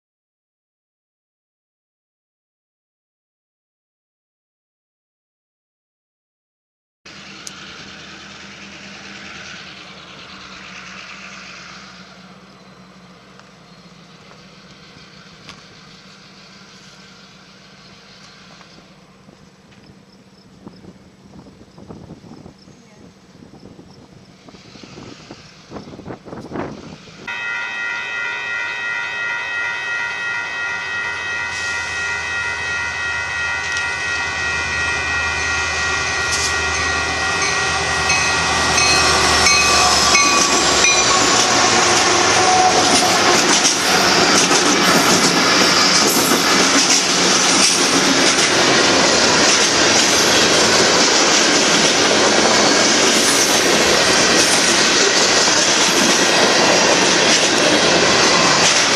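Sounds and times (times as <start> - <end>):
freight train rolling by: 7.1 - 58.9
locomotive air horn: 27.3 - 45.2
wheels clacking over rail joints: 36.3 - 58.9.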